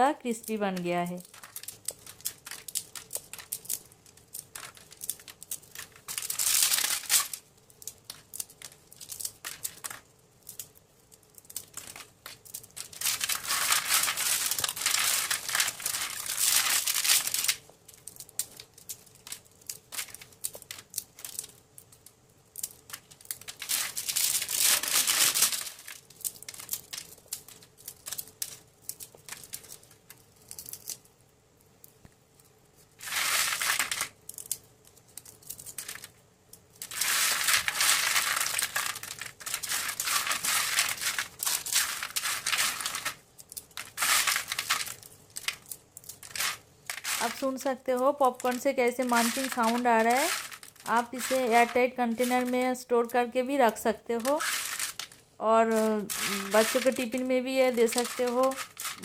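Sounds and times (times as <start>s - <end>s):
popcorn crackling and crunching: 0.0s - 59.0s.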